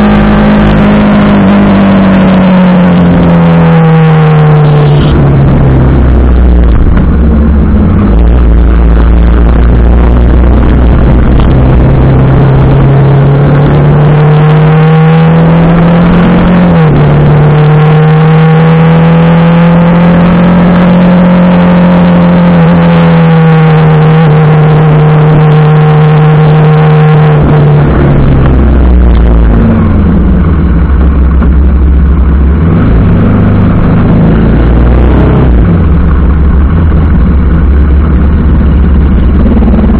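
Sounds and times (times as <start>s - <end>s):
loud rushing noise: 0.0s - 17.4s
motorcycle engine running: 0.0s - 39.9s.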